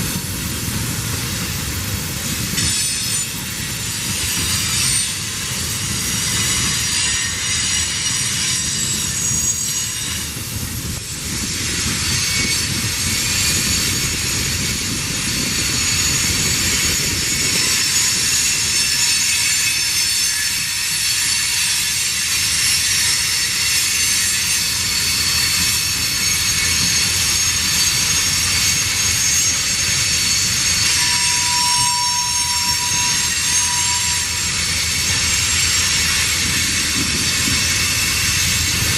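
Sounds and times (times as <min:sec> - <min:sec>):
freight train rumbling past: 0:00.0 - 0:38.9
high-pitched wheel squeal: 0:06.8 - 0:10.3, 0:13.3 - 0:21.9, 0:22.6 - 0:38.9.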